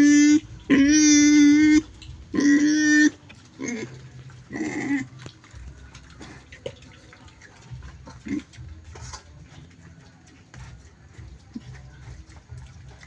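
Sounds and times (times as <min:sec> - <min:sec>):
pig grunting: 0:00.0 - 0:13.0.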